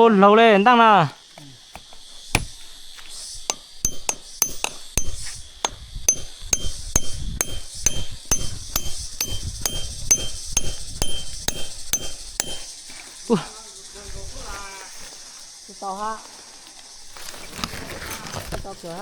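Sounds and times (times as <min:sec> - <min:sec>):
metal tool striking metal: 0:01.7 - 0:12.8.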